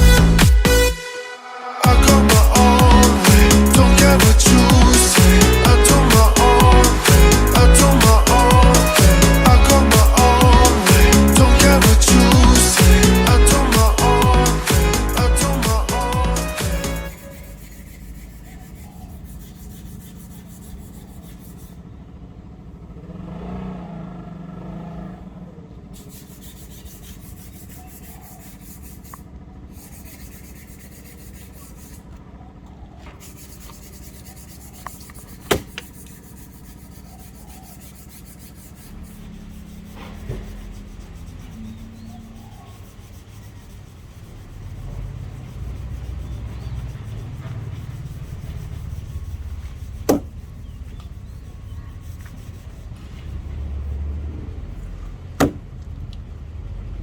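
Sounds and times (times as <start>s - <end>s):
hand rubbing wooden handle: 1.8s - 21.8s, 26.0s - 32.1s, 33.1s - 55.6s.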